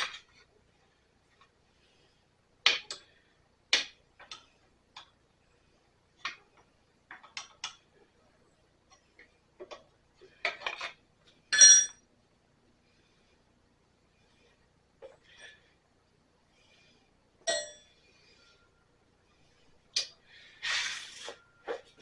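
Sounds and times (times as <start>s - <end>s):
metal wrenches clinking: 10.5s - 12.0s.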